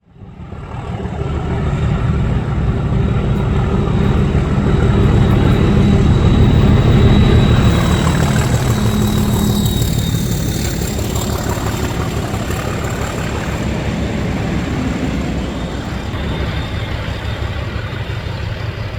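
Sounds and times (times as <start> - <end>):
diesel locomotive engine throbbing: 0.0 - 18.9
thin high whistle: 5.1 - 13.6, 14.6 - 18.9.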